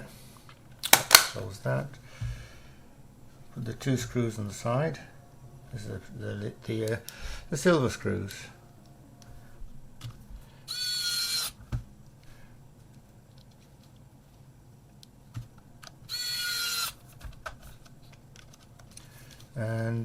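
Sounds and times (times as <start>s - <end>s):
electric screwdriver whining: 10.7s - 11.6s, 16.1s - 17.0s.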